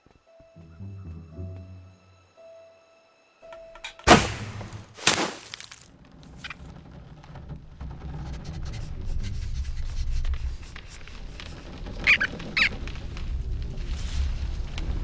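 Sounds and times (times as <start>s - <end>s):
loud crash-like impact: 4.1s - 5.7s
low rumble: 12.7s - 15.0s.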